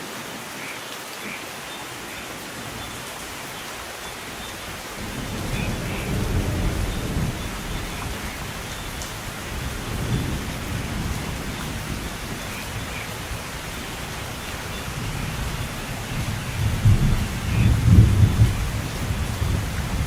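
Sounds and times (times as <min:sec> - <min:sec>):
heavy rain: 0:00.0 - 0:20.0
low rolling thunder: 0:05.0 - 0:20.0.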